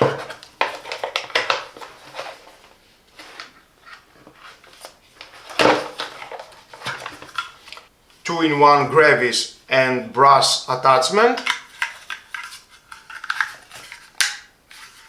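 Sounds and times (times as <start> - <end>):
plastic parts being handled: 0.0 - 7.9, 11.2 - 15.0.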